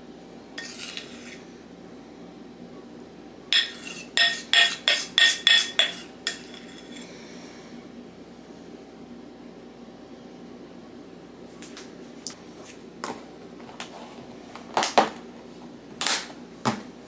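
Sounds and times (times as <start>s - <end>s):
soft scrape: 0.6s - 1.5s, 3.6s - 7.1s
metal utensil clinking on dish: 3.6s - 7.0s.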